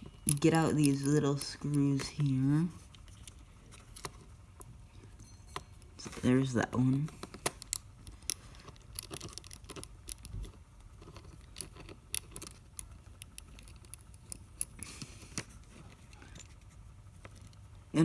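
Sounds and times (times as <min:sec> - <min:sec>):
screwdriver clicking on metal: 0:00.0 - 0:06.4, 0:07.0 - 0:16.5.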